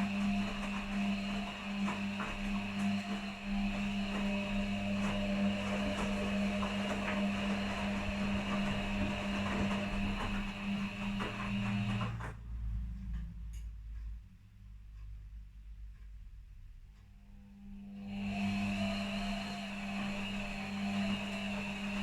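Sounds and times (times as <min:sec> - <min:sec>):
tumbling load churning: 0:00.0 - 0:12.4
washing machine motor hum: 0:00.0 - 0:13.2, 0:17.2 - 0:22.0.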